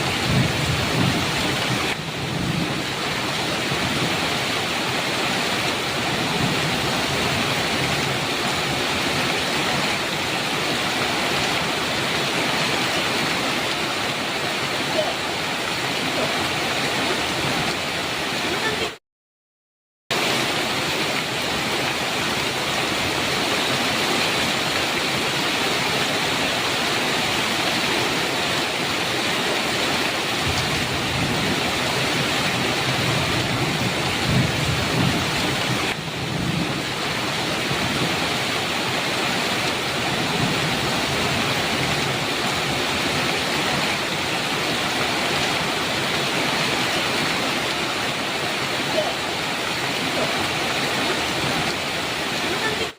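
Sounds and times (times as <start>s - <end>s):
low thunder rumble: 0.0s - 4.2s, 30.4s - 38.3s
heavy rain: 0.0s - 19.0s, 20.1s - 52.9s.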